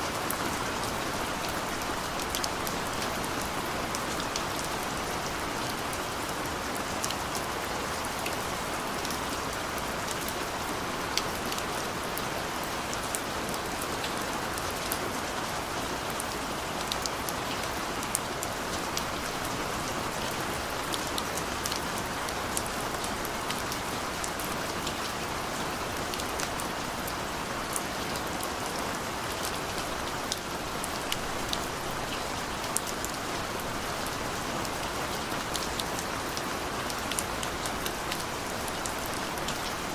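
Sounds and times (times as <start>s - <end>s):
steady rain hiss: 0.0s - 39.9s
raindrops ticking on surface: 16.1s - 39.9s.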